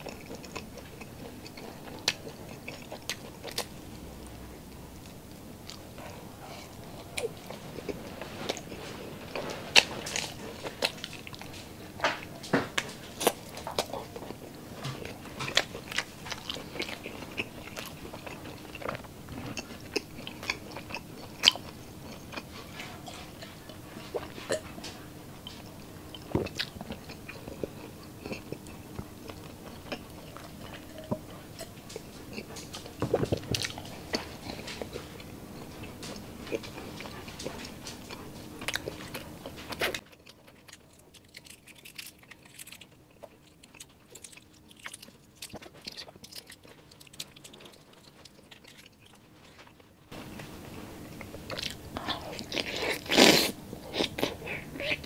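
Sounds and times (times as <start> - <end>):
crunchy chewing: 0.0 - 55.0.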